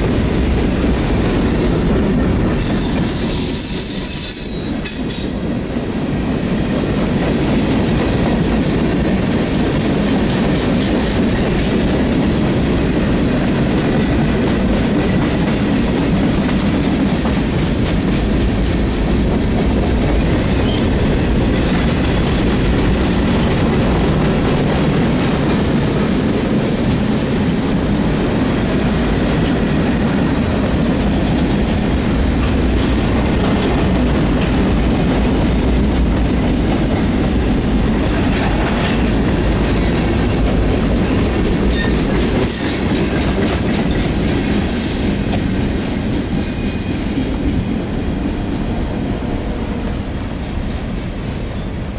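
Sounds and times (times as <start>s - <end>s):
train rumble: 0.0s - 51.9s
high wheel squeals: 2.5s - 5.1s
train wheels clacking over rail joints: 6.3s - 12.7s, 31.1s - 51.0s.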